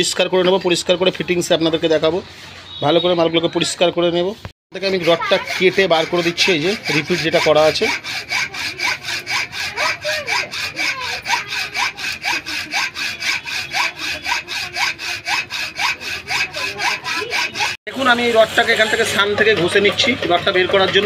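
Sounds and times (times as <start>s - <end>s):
hand saw cutting steel rod: 4.8s - 21.0s.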